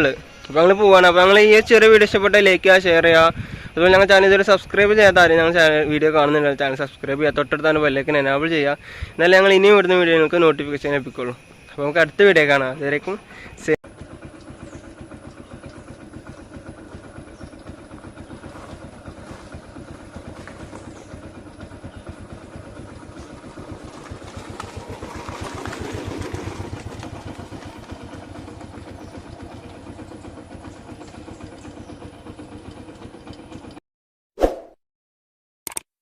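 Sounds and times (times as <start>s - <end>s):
motorcycle engine running: 13.8s - 33.8s.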